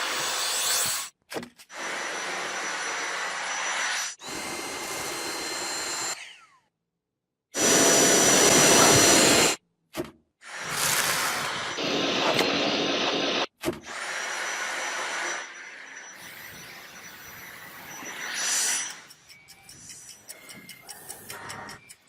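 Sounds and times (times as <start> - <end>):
vacuum cleaner motor whine: 1.7 - 6.4, 7.6 - 9.6, 10.6 - 19.0.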